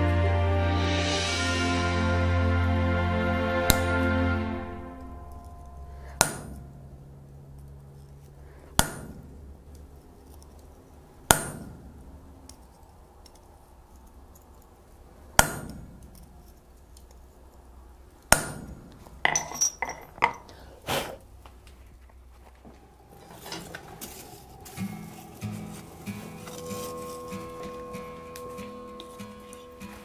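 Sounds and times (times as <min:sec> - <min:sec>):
hammer striking steel: 0:03.7 - 0:04.1, 0:05.1 - 0:07.0, 0:08.7 - 0:09.4, 0:11.3 - 0:12.0, 0:15.4 - 0:16.3, 0:18.3 - 0:20.4
light metal clinks: 0:19.2 - 0:20.6.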